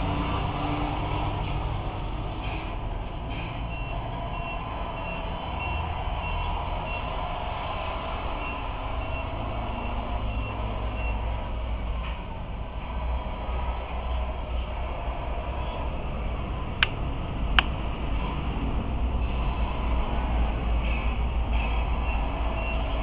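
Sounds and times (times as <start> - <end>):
steady low rumble: 1.2 - 22.1
reversing beeper: 3.4 - 7.3, 8.0 - 11.4.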